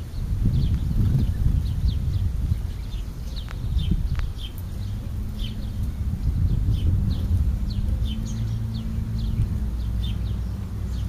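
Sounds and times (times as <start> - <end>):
low rumble: 0.0 - 11.0
songbird chirping: 0.0 - 11.0.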